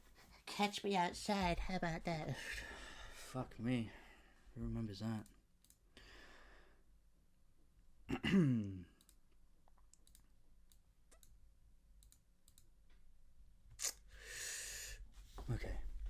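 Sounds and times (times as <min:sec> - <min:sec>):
soft clicks: 0:05.2 - 0:05.8, 0:09.0 - 0:11.4, 0:12.0 - 0:13.1
man exhaling: 0:14.2 - 0:15.0.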